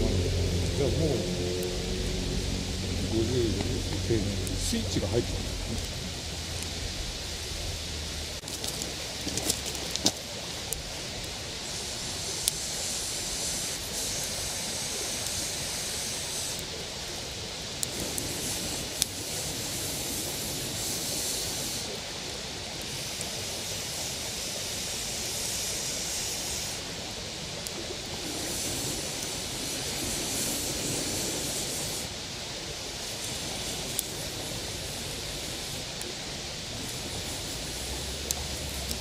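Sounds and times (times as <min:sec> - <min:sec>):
campfire crackling pops: 0:00.0 - 0:15.4, 0:17.8 - 0:21.0, 0:33.0 - 0:36.1, 0:36.7 - 0:39.0
steady rushing hiss: 0:00.0 - 0:39.0.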